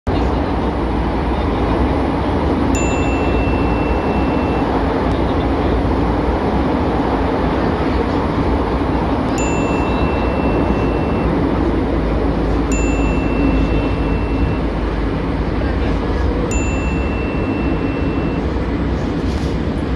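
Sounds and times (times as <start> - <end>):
metro train rumbling: 0.0 - 19.9
thin high beep: 2.8 - 5.1, 9.3 - 11.7, 12.5 - 15.0, 16.5 - 18.7.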